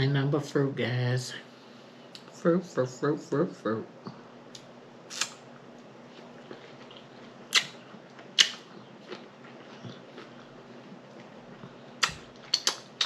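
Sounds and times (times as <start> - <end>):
sharp crunches of eating: 5.1 - 5.5, 6.1 - 13.0
mouth ticks and smacks: 8.4 - 8.9, 11.6 - 13.0.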